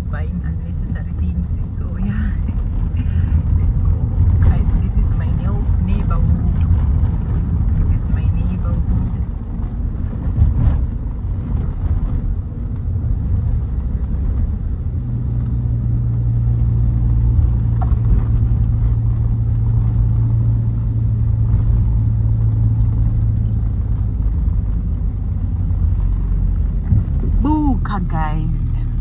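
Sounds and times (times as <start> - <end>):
engine hum: 0.0 - 29.0
vehicle driving rumble: 0.0 - 29.0.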